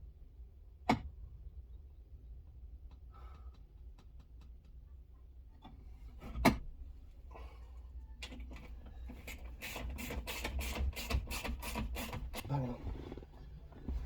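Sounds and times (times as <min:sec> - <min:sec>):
light clicks and taps of hand work: 0:02.8 - 0:04.8.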